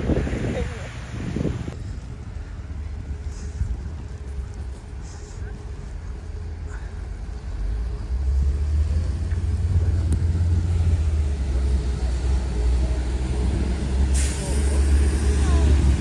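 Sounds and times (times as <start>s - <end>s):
blizzard wind buffeting microphone: 0.0s - 16.0s
outdoor street noise: 0.0s - 16.0s.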